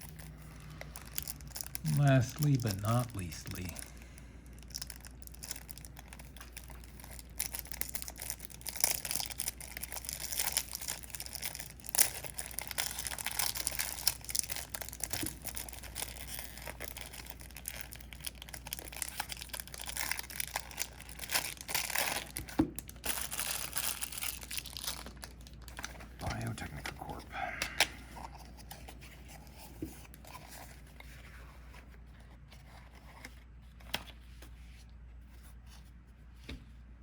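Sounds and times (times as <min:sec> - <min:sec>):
packaging tearing and crinkling: 0:00.0 - 0:03.9, 0:04.6 - 0:26.7.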